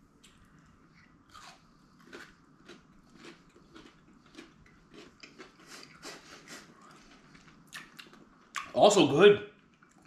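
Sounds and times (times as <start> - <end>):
chocolate bar being bitten and chewed: 1.3 - 6.0.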